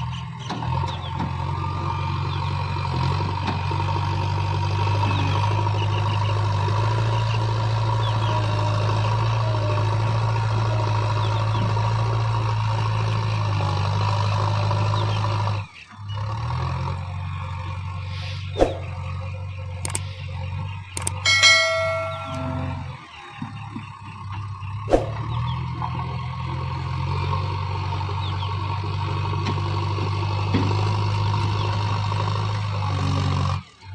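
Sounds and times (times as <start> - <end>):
backhoe diesel engine running: 0.0 - 33.9
sharp metallic knocks: 21.0 - 23.6
ringing metal clang: 21.1 - 23.4.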